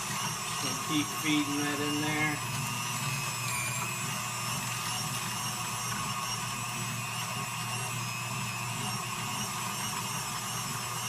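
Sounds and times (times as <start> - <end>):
food grinder grinding meat: 0.0 - 11.0
stand mixer whining: 0.0 - 11.0.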